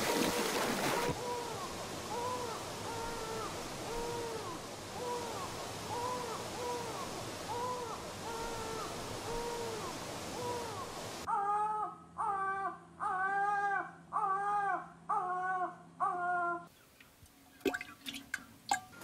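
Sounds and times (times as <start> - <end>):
flowing river water: 0.0 - 11.3, 16.9 - 19.0
bird hooting: 0.9 - 16.7.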